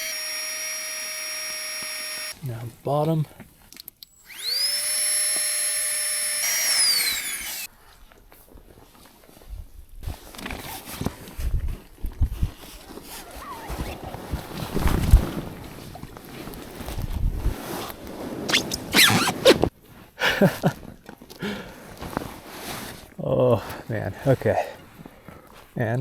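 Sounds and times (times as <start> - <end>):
electric air pump whine: 0.0 - 2.4, 4.1 - 7.7, 18.5 - 19.6
rustling: 7.0 - 25.8.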